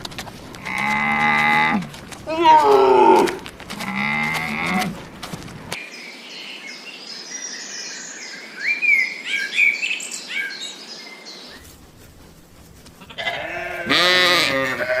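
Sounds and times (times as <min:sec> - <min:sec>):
birds chirping: 0:00.0 - 0:15.0
cow mooing: 0:00.6 - 0:04.9, 0:13.2 - 0:15.0.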